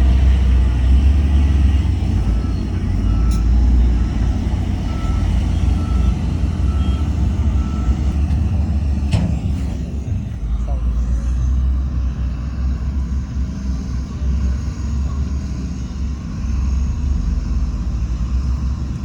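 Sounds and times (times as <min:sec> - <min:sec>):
heavy diesel machinery rumbling: 0:00.0 - 0:19.0
reversing alarm beeps: 0:02.2 - 0:08.4.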